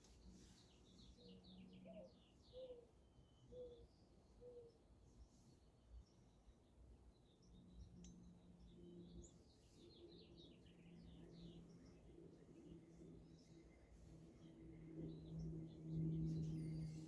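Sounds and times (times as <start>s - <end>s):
faint bird chirps: 0.2s - 5.3s
low steady hum: 6.4s - 17.0s.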